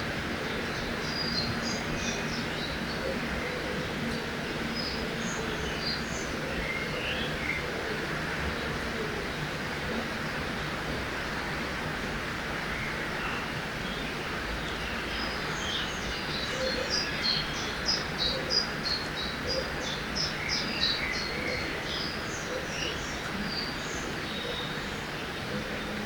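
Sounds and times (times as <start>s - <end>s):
birdsong: 0.0s - 11.8s, 12.5s - 26.0s.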